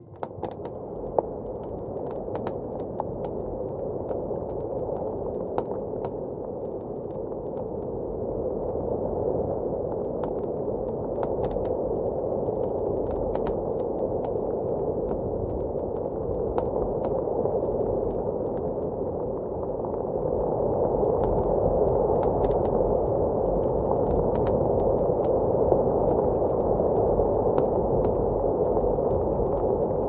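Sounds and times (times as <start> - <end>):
blizzard wind rushing: 0.7 - 30.0.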